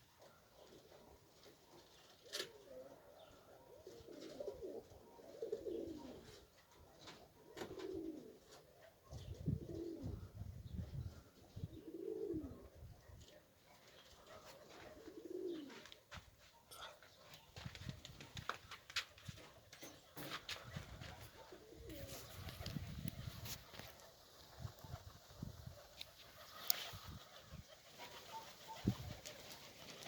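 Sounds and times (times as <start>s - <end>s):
pigeons cooing: 0.0s - 16.0s, 19.4s - 30.0s
wind rumble on microphone: 22.0s - 23.6s.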